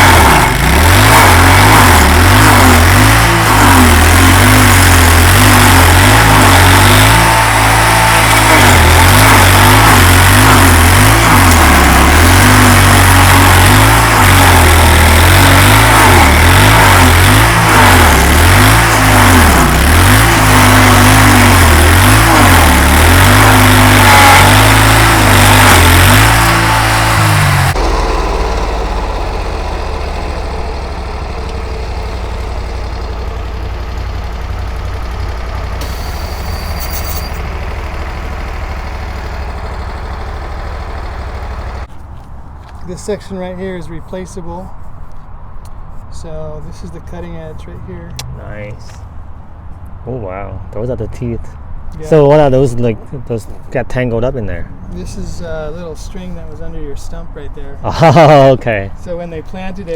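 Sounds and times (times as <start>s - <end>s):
stump grinder engine running: 0.0s - 41.9s
wheel grinding tree stump: 0.0s - 43.1s.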